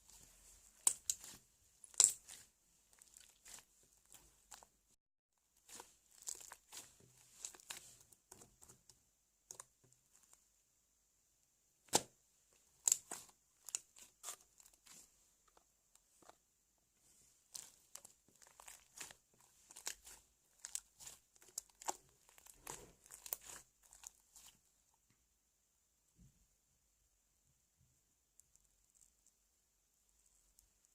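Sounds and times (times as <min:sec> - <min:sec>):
slime squished by hand: 0:17.5 - 0:24.6.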